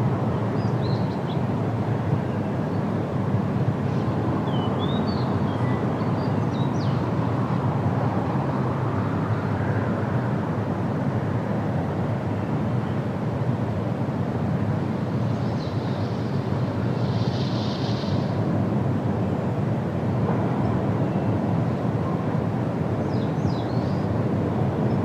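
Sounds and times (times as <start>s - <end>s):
wind blowing through trees: 0.0s - 25.0s.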